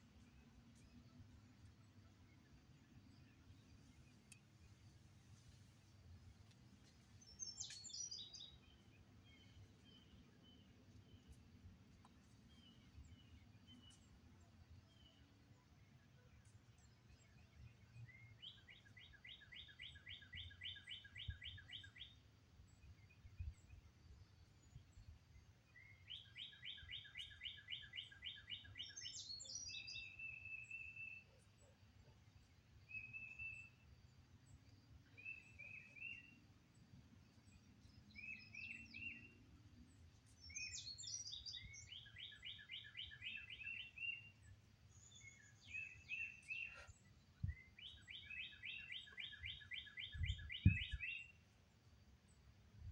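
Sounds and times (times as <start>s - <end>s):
songbirds singing: 0.0s - 52.9s.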